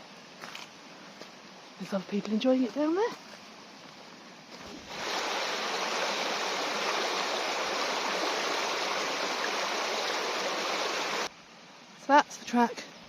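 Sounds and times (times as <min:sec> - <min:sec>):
river rushing over rocks: 0:04.8 - 0:11.3.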